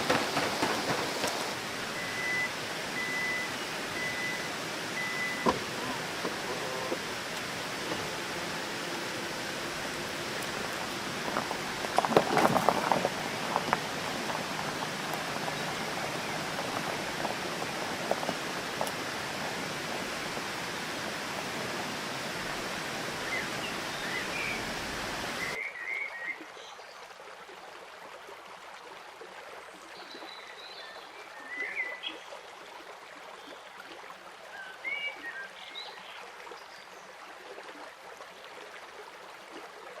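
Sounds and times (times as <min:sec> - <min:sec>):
outdoor ambience: 0:00.0 - 0:25.6
rushing water: 0:00.0 - 0:40.0
bird chirps: 0:00.1 - 0:07.0, 0:23.1 - 0:26.0.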